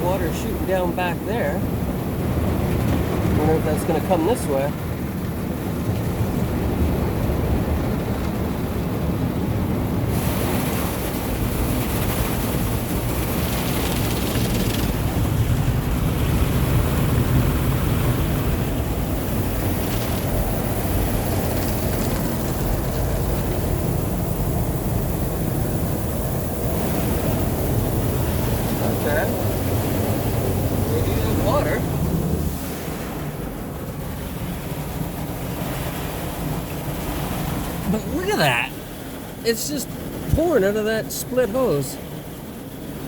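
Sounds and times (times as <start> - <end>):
water spraying onto vehicle: 10.0 - 34.0.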